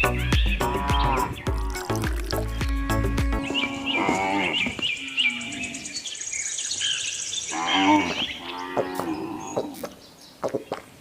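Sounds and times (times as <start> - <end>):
birds chirping: 0.0 - 11.0
insects trilling: 0.4 - 6.4
cow mooing: 0.6 - 5.9, 7.5 - 9.6.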